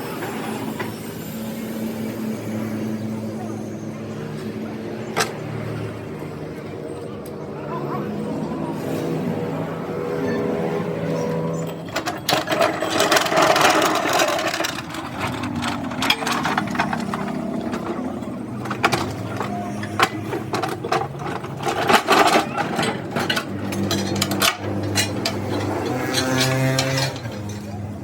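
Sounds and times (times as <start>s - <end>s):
metal knocks and clanks: 11.5s - 28.0s.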